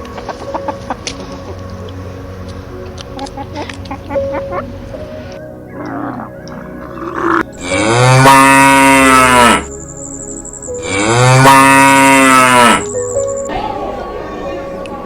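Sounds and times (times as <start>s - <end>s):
cow mooing: 5.7s - 9.7s, 10.8s - 12.9s.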